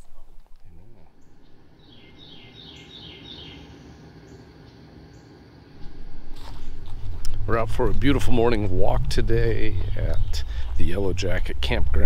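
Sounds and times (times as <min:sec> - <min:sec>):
bird singing chirps: 0:01.2 - 0:05.4, 0:07.7 - 0:11.5
steady low rumble: 0:05.7 - 0:12.0
rustling: 0:05.8 - 0:08.3.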